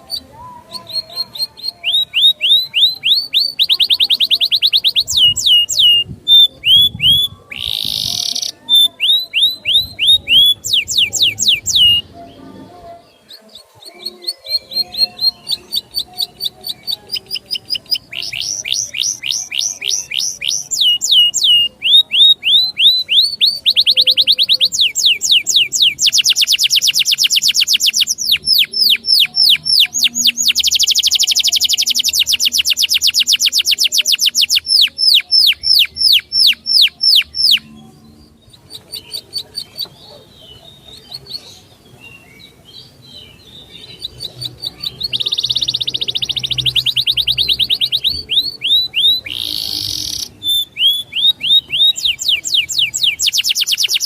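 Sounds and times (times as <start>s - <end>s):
songbird trilling: 0.0s - 12.1s, 13.4s - 37.8s, 38.5s - 54.0s.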